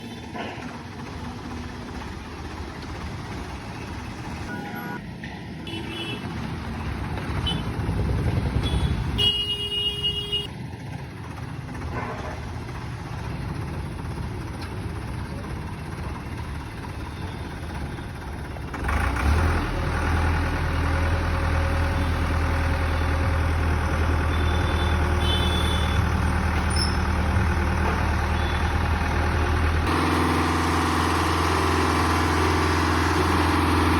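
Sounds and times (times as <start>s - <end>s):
diesel truck engine running: 0.0s - 33.9s.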